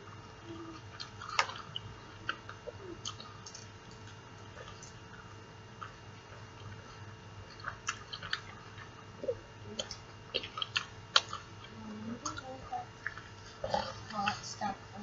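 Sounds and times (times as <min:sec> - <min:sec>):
person chewing: 0:00.7 - 0:11.7.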